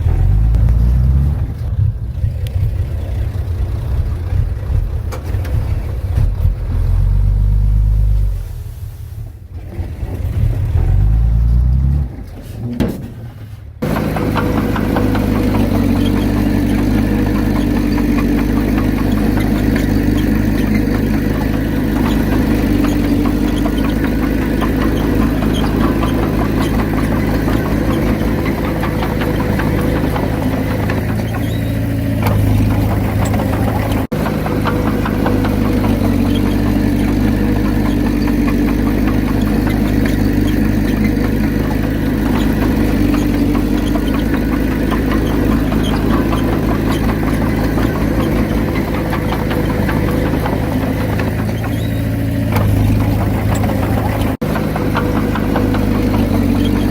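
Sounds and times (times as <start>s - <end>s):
low rumble: 0.0s - 12.0s
heavy diesel engine running: 0.0s - 56.9s.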